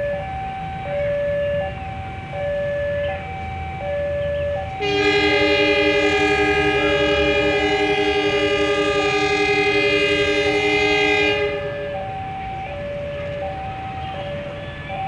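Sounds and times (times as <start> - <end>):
low rumble of train: 0.0 - 15.0
two-tone electronic warning signal: 0.0 - 15.0
locomotive air horn blast: 4.7 - 14.6.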